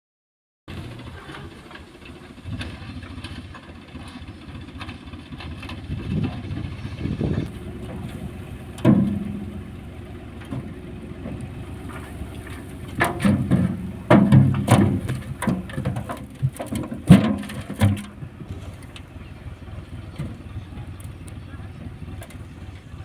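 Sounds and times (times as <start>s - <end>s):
tractor diesel engine running: 0.7s - 23.0s
sharp clunks and rattles: 4.8s - 23.0s.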